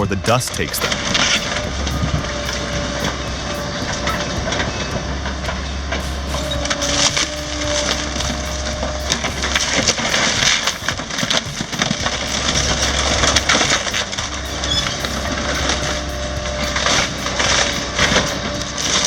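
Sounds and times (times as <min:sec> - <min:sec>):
excavator rumble: 0:00.0 - 0:19.0.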